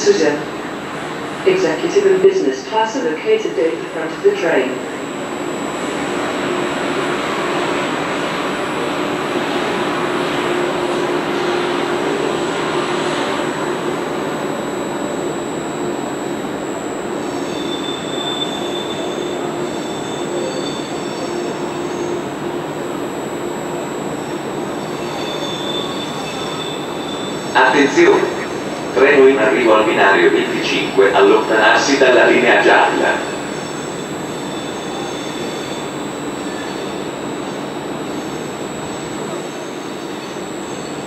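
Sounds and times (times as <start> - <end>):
high-pitched wheel squeal: 17.2 - 22.2, 24.8 - 27.5.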